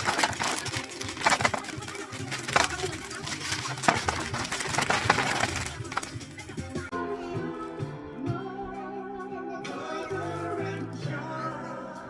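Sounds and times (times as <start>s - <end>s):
crinkling: 0.0s - 6.9s
objects being handled: 0.0s - 6.9s.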